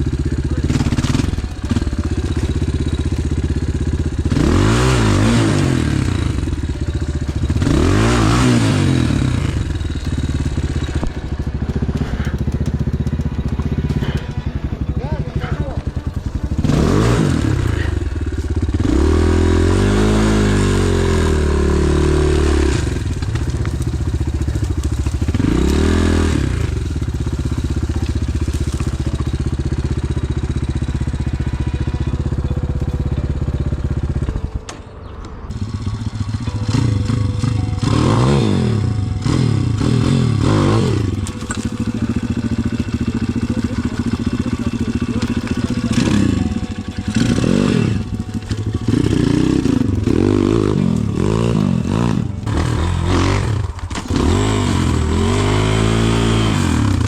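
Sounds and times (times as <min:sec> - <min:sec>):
motorbike engine revving: 0:00.0 - 0:57.0
bike clattering over ground: 0:22.0 - 0:37.6, 0:40.6 - 0:54.9.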